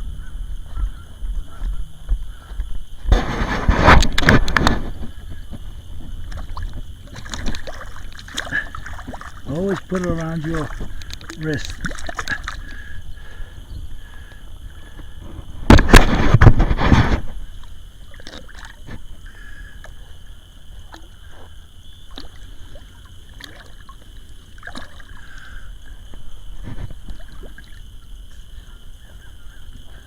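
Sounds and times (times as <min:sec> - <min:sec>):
faint water gurgles: 0:00.0 - 0:30.0
river water sloshing at bank: 0:03.2 - 0:30.0
water splash: 0:06.2 - 0:12.9, 0:18.1 - 0:19.1, 0:20.8 - 0:25.6, 0:26.6 - 0:27.9.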